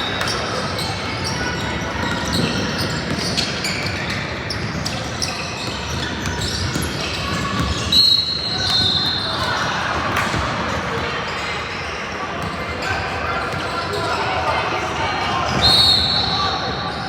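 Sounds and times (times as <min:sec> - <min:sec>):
shoe squeaks: 0:00.0 - 0:09.6
referee's whistle: 0:07.8 - 0:09.5, 0:15.5 - 0:16.9.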